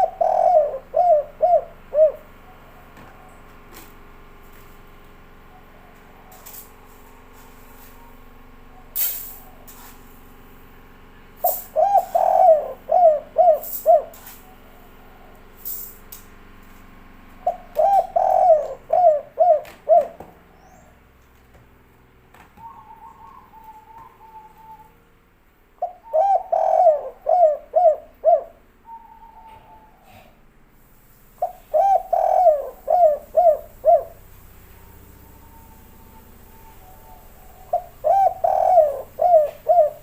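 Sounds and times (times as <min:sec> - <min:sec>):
dove cooing: 0:00.0 - 0:03.8, 0:11.4 - 0:15.5, 0:17.4 - 0:21.0, 0:22.6 - 0:25.0, 0:25.8 - 0:30.5, 0:31.4 - 0:40.0.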